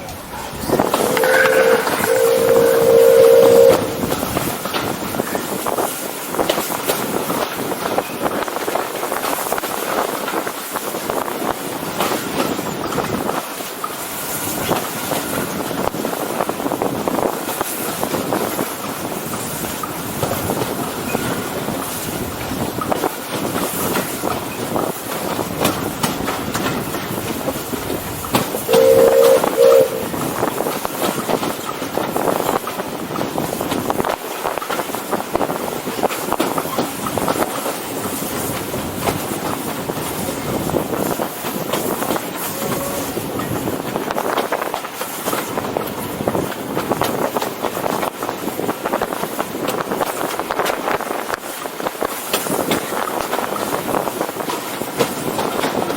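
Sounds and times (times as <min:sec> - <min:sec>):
train wheels clicking over rail joints: 0:00.1 - 0:55.9
steam locomotive whistle: 0:00.7 - 0:04.5, 0:28.6 - 0:30.5.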